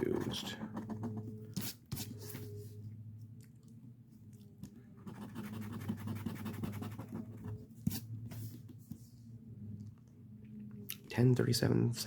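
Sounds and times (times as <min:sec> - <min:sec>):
scratching lottery ticket: 0:00.0 - 0:02.2, 0:05.0 - 0:07.6
low steady hum: 0:00.0 - 0:12.0.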